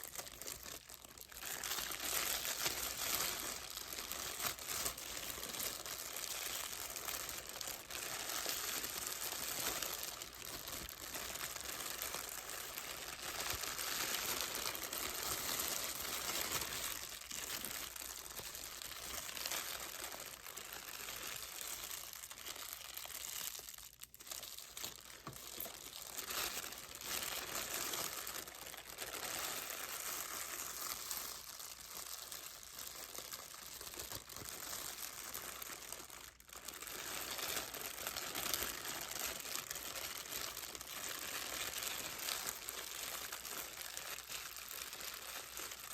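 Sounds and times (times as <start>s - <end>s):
packaging crinkling: 0.0s - 45.9s.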